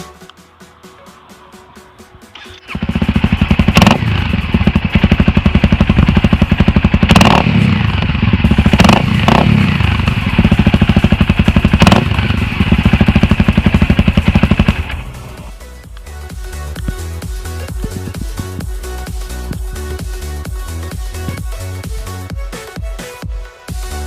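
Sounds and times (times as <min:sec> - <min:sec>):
electronic music with steady beat: 0:00.0 - 0:02.5, 0:08.5 - 0:24.0
exhaust cracks: 0:02.3 - 0:15.6
motorcycle engine running hard: 0:02.4 - 0:22.3.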